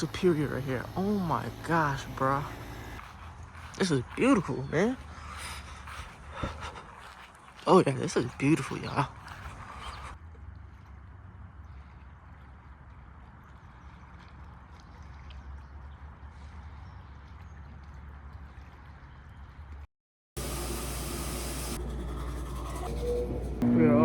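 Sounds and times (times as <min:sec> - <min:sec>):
steady humming: 0:00.0 - 0:06.9, 0:20.4 - 0:24.0
lake water washing along shore: 0:00.0 - 0:10.1.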